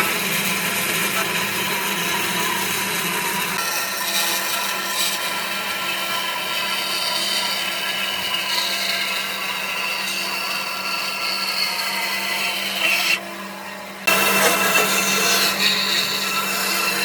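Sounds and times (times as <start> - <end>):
power tool working wood: 0.0 - 17.0.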